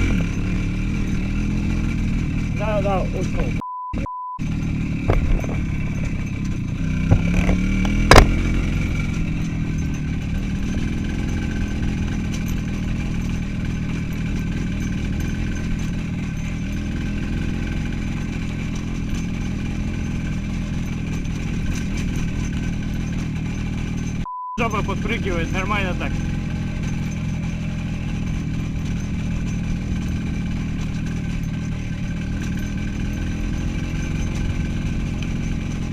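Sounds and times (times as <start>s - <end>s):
motorcycle engine running: 0.0s - 35.9s
road and wind noise: 0.0s - 35.9s
sharp thump: 5.0s - 8.6s.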